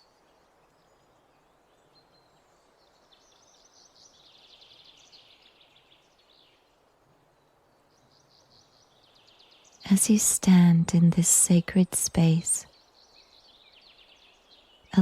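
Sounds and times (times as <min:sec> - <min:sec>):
soft background hiss: 0:00.0 - 0:15.0.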